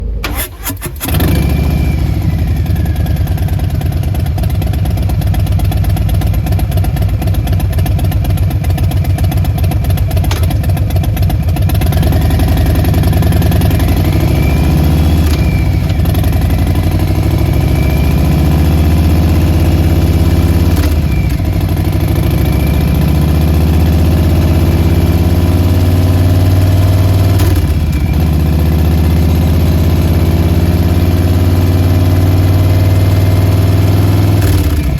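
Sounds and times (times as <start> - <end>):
motorcycle engine idling: 1.4 - 26.1.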